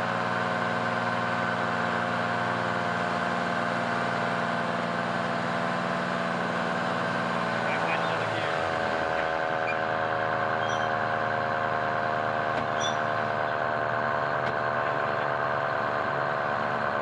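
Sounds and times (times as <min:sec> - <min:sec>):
fire truck engine running: 0:00.0 - 0:17.0.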